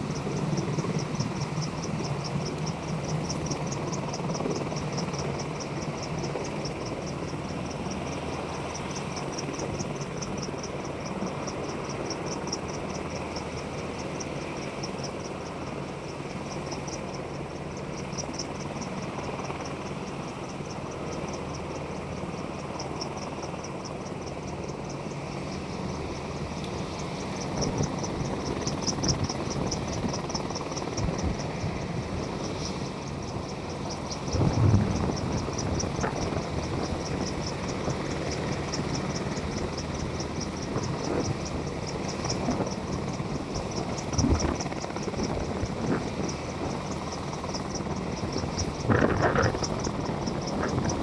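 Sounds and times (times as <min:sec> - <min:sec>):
insects chirping: 0:00.0 - 0:51.0
steady low hum: 0:00.0 - 0:51.0.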